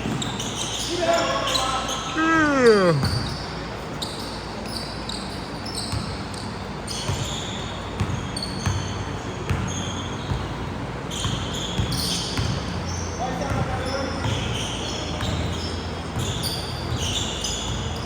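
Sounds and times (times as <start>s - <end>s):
sneakers squeaking: 0.0s - 3.4s, 4.0s - 18.0s
basketball bouncing on court: 8.0s - 10.6s, 13.5s - 15.6s.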